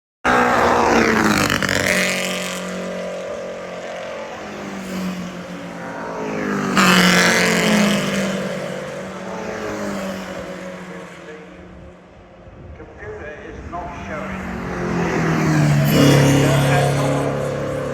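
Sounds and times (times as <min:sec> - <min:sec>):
racing car engines passing at speed: 0:00.2 - 0:17.9.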